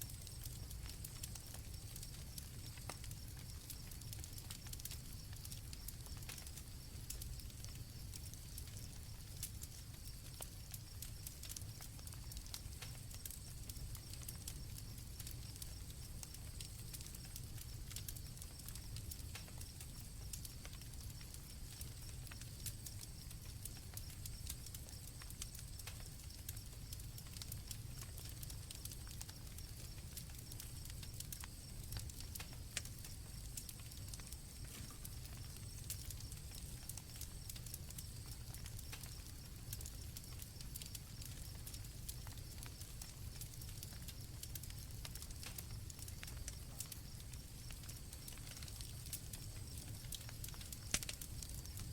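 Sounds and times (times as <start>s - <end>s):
campfire crackling and popping: 0.0s - 51.9s
crickets trilling: 0.1s - 51.9s.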